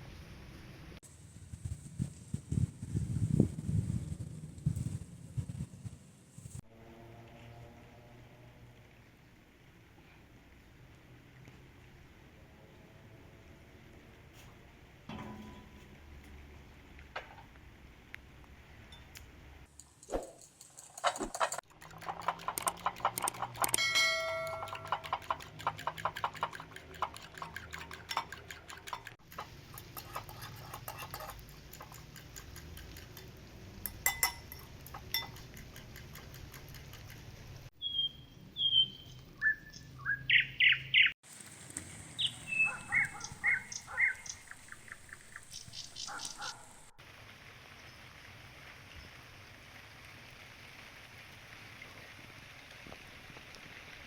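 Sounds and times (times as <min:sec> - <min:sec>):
clicks and crackles: 0:19.1 - 0:30.3
bird chirps and calls: 0:37.8 - 0:41.1, 0:42.2 - 0:46.8.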